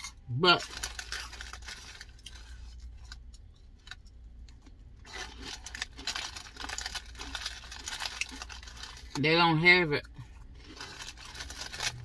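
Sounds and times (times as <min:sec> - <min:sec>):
low steady hum: 0:00.0 - 0:12.0
person chewing food: 0:10.1 - 0:12.0.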